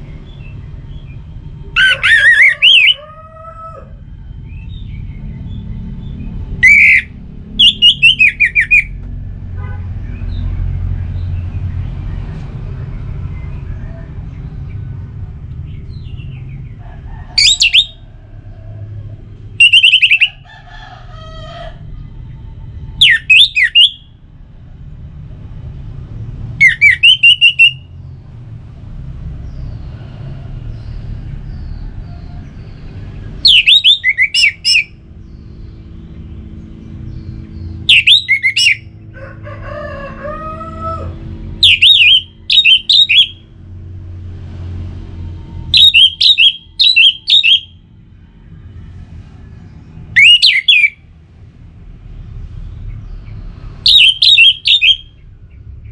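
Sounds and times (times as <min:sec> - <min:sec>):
steady low rumble: 0:03.9 - 0:23.3
bird singing whistled phrases: 0:06.6 - 0:08.9, 0:19.6 - 0:20.3, 0:23.0 - 0:24.0, 0:26.6 - 0:27.9, 0:33.4 - 0:35.0, 0:37.9 - 0:38.8, 0:41.6 - 0:43.4, 0:45.8 - 0:47.8, 0:50.2 - 0:51.0, 0:53.9 - 0:55.1.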